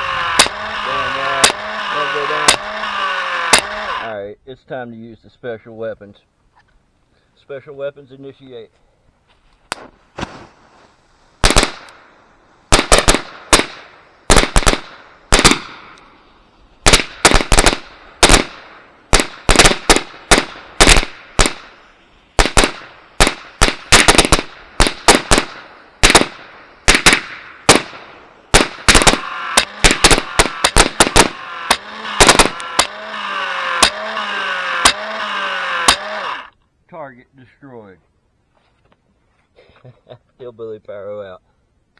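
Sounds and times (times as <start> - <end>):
steady hiss: 4.1 - 32.8
firecracker bangs: 9.7 - 12.0, 12.7 - 16.0, 16.8 - 21.8, 22.4 - 32.9.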